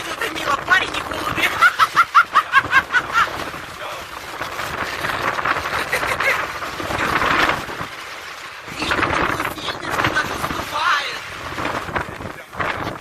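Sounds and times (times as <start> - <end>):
strong wind on microphone: 0.0 - 13.0
laughter: 1.5 - 3.5, 5.6 - 6.5.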